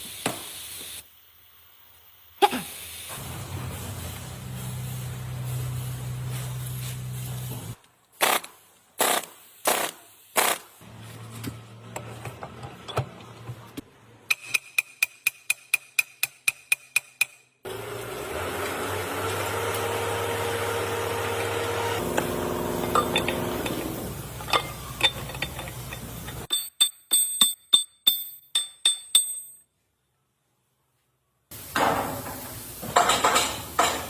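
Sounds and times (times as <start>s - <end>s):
machine running: 17.7s - 24.4s.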